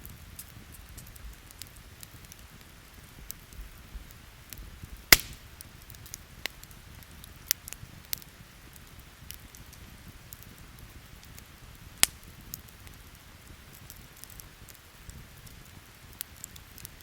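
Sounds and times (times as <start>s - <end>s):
campfire crackling and popping: 0.0s - 17.0s
faint rain hiss: 0.0s - 17.0s.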